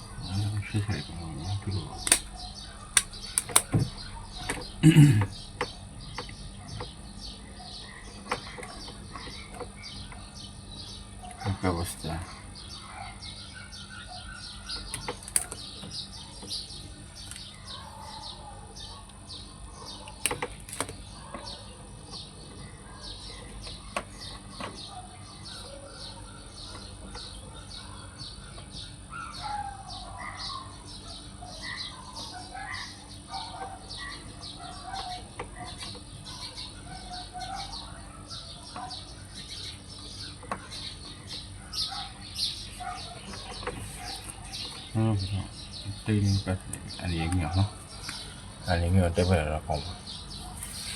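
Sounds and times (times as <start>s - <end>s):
insect drone: 0.0s - 12.7s
small birds chirping: 0.0s - 50.9s.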